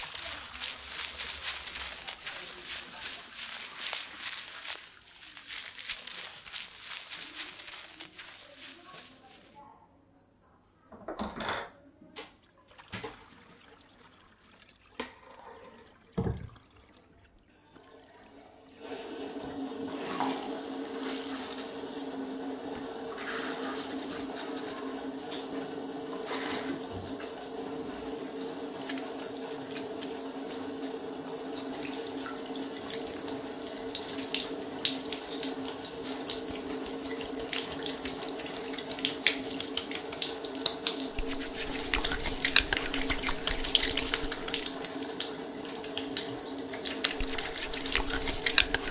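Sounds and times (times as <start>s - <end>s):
shower spraying water: 0.0s - 9.5s, 18.8s - 48.9s
water drops spattering: 36.3s - 48.9s.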